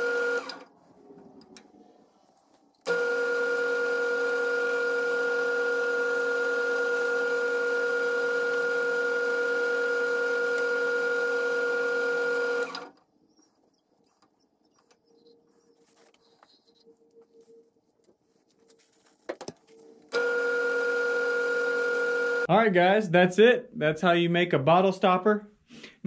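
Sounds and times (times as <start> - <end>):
lathe motor whining: 0.0 - 0.7, 2.8 - 13.0, 20.1 - 22.5.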